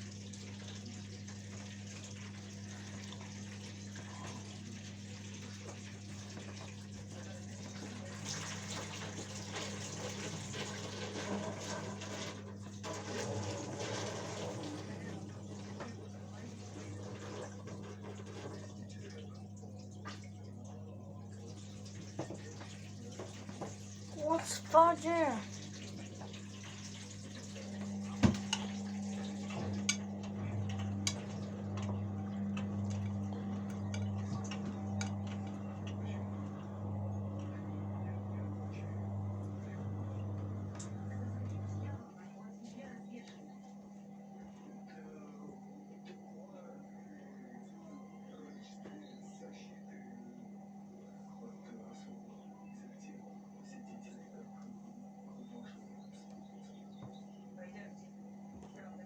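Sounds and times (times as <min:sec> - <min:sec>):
washing machine water sloshing: 0:00.0 - 0:42.1.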